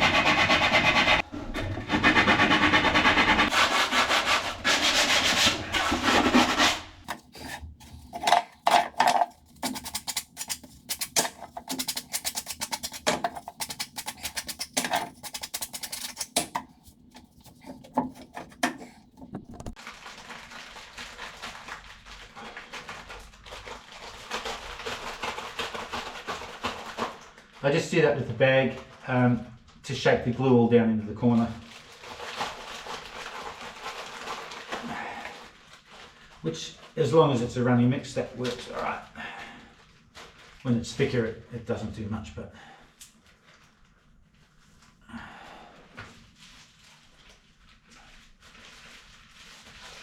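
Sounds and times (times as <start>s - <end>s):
rubbing on wood: 1.9s - 19.8s.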